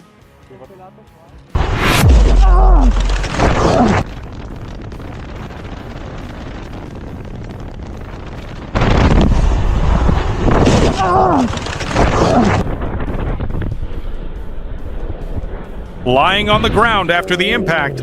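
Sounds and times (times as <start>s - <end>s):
steady rushing noise: 1.5s - 18.0s
people yelling: 2.2s - 4.0s.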